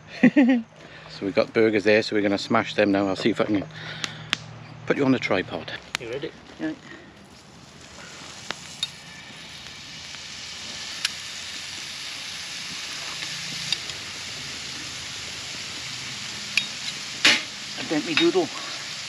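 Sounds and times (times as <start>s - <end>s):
burger patties sizzling in a pan: 5.3s - 19.0s.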